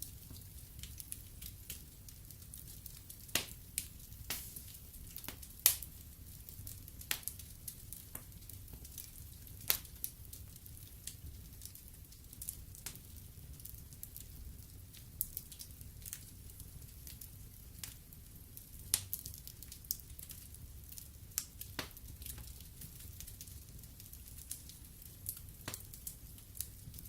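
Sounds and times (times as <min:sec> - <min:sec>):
fire crackling and popping: 0:00.0 - 0:27.0
low steady fire rumble: 0:00.0 - 0:27.0.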